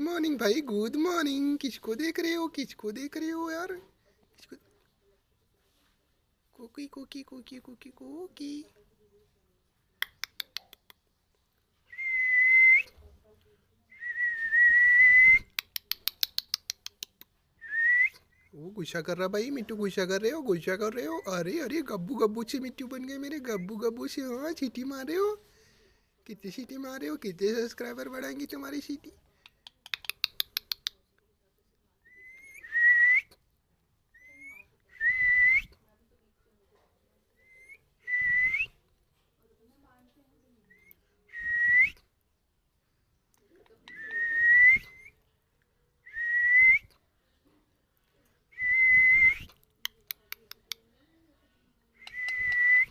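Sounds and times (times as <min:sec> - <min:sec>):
parrot clicks: 0:10.0 - 0:11.0, 0:15.5 - 0:17.4, 0:29.4 - 0:31.0, 0:49.5 - 0:50.8
parrot whistling: 0:52.0 - 0:52.9.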